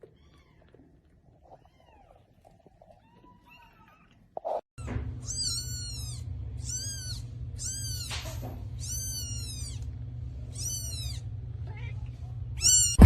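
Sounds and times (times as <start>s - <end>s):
steady low hum: 4.8s - 13.0s
cat meowing: 5.2s - 9.8s, 10.5s - 12.0s, 12.6s - 13.0s.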